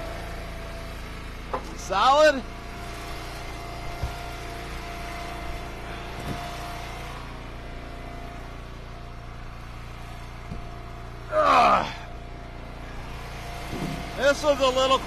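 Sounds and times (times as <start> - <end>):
small gas engine running: 0.0 - 15.0.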